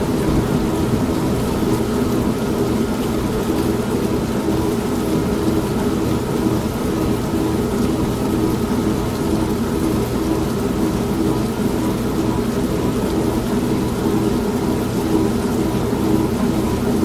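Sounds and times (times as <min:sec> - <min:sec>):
low rumble: 0:00.0 - 0:02.6
steady rain: 0:00.0 - 0:16.9
washing machine churning: 0:00.0 - 0:17.0.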